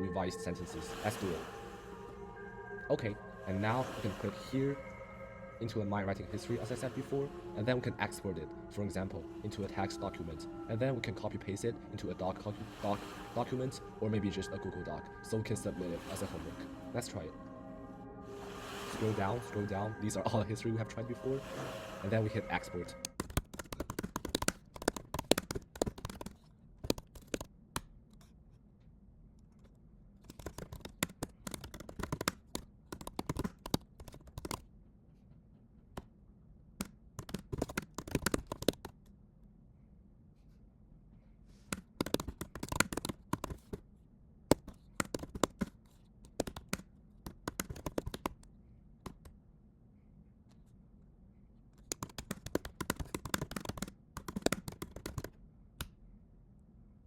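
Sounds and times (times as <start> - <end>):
computer keyboard typing: 23.0 - 27.5, 30.3 - 34.6, 37.2 - 39.0, 41.8 - 43.7, 44.6 - 45.7, 46.3 - 48.4, 51.8 - 55.3.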